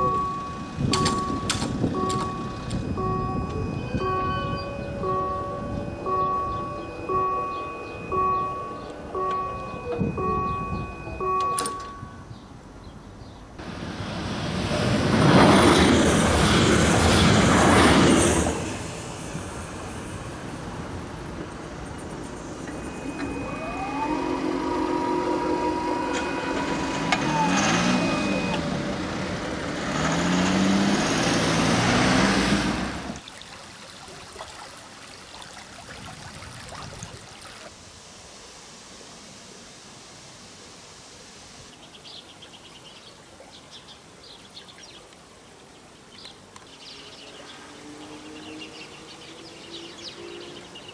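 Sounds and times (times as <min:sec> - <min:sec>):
train passing: 0:00.0 - 0:12.8, 0:13.6 - 0:33.2
road vehicles driving past: 0:00.0 - 0:35.8, 0:45.6 - 0:50.9.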